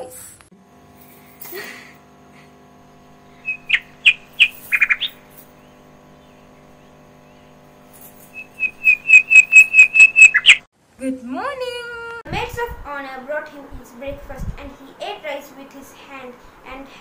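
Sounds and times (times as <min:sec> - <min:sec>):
songbird chirping: 0:03.3 - 0:07.6, 0:08.3 - 0:10.7.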